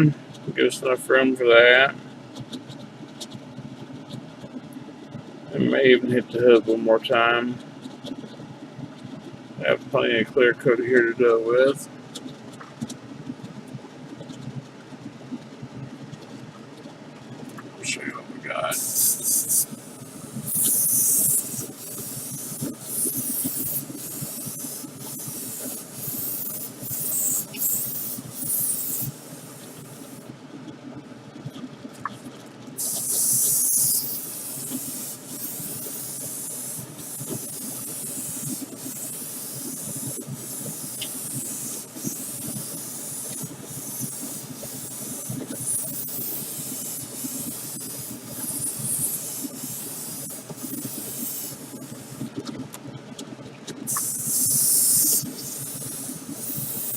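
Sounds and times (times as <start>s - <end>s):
steady low hum: 0.0s - 56.9s
spray paint hissing: 18.6s - 30.3s, 32.8s - 52.3s, 53.9s - 56.9s.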